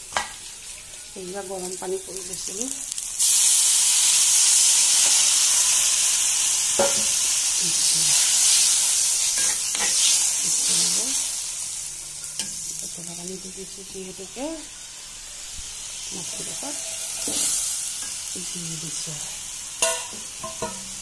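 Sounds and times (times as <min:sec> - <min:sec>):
curry sizzling in a pan: 0:00.0 - 0:21.0
spatula scraping a pan: 0:16.4 - 0:18.2.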